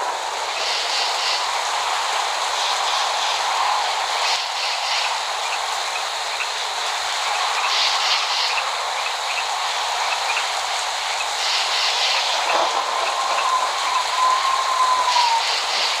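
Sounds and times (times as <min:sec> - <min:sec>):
pattering drips: 0:00.0 - 0:15.0
heavy rain falling: 0:00.0 - 0:16.0
faint thin whistling tone: 0:12.9 - 0:15.7.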